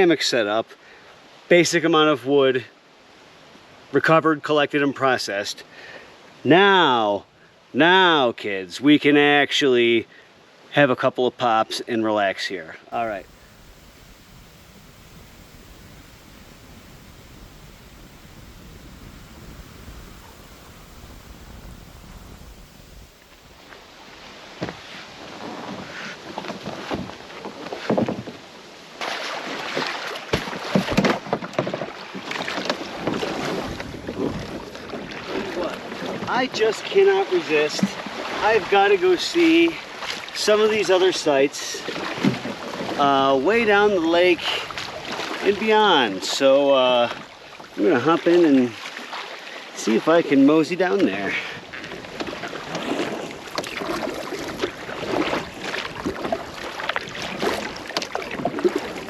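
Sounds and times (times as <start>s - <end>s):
wind on microphone: 13.0s - 25.9s, 33.0s - 36.3s
water sloshing around canoe: 13.2s - 28.4s, 29.0s - 36.3s, 37.8s - 38.8s, 41.8s - 43.0s, 44.6s - 45.5s, 47.1s - 49.8s, 51.0s - 59.0s.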